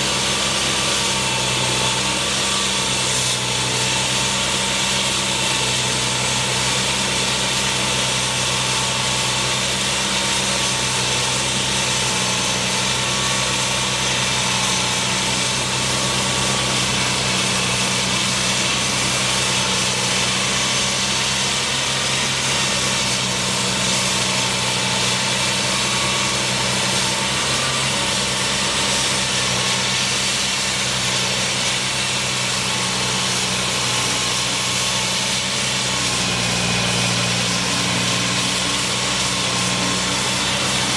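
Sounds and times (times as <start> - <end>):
construction machinery engine running: 0.0 - 40.9.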